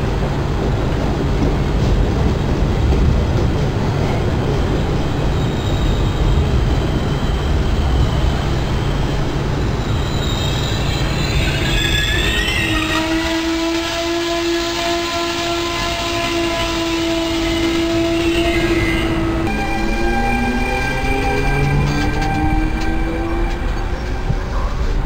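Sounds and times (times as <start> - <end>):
train coaches rolling past: 0.0 - 25.0
train wheels and brakes squealing: 3.9 - 25.0.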